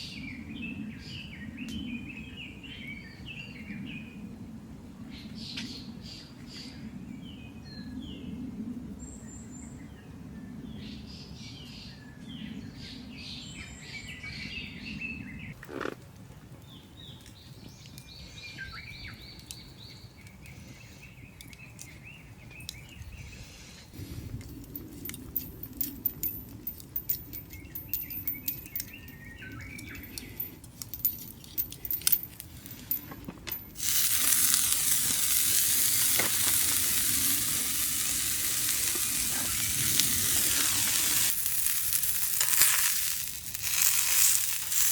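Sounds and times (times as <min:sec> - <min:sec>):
birds chirping: 0:24.6 - 0:43.6
sharp crackles and ticks: 0:29.6 - 0:44.9
food sizzling in a hot pan: 0:33.8 - 0:44.9.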